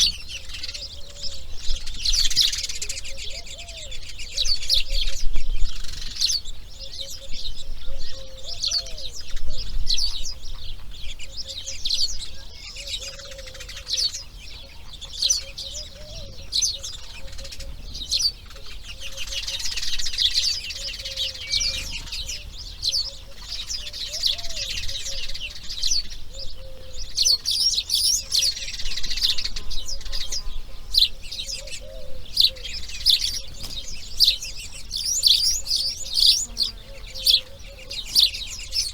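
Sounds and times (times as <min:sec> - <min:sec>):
birds chirping rapidly: 0:00.0 - 0:38.9
lower arched bird call: 0:12.6 - 0:38.9.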